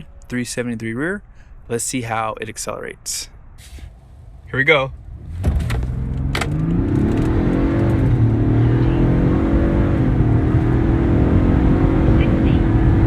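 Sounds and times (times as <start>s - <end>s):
truck engine accelerating: 4.2s - 13.0s.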